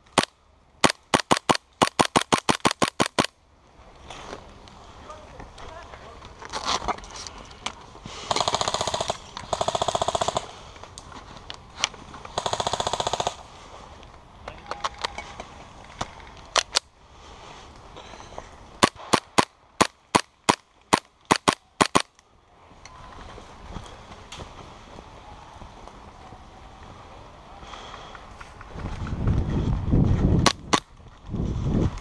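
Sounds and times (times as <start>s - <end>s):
airsoft gunfire: 0.2s - 3.3s, 8.3s - 10.5s, 12.4s - 13.4s, 18.8s - 22.1s.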